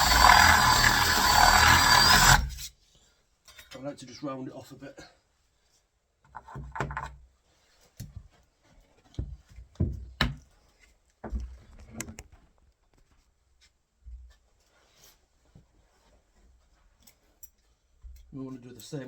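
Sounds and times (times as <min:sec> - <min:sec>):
tool scraping wood: 0:00.0 - 0:02.7.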